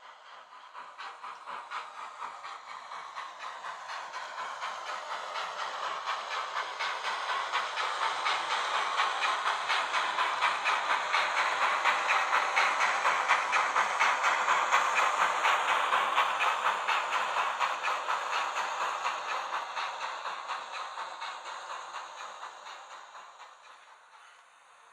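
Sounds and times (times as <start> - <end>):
steam exhaust chuffs with hiss: 0.0 - 24.9.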